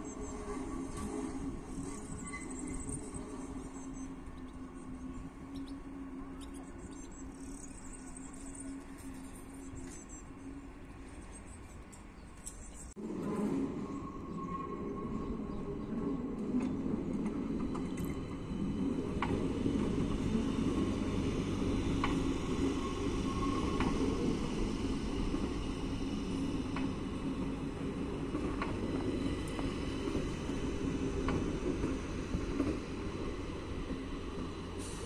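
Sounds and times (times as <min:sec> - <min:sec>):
metro train rumbling: 0:00.0 - 0:35.0.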